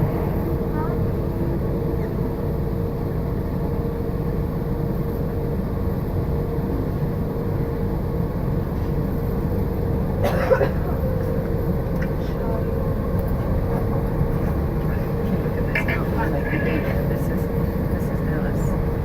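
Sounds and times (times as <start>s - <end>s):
constant hum: 0.0s - 19.0s
train rumbling inside carriage: 0.0s - 19.0s.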